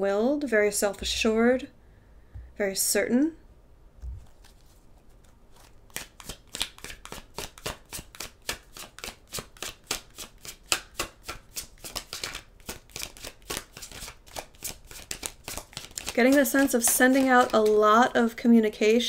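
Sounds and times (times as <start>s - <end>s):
cards being shuffled: 4.0s - 18.0s.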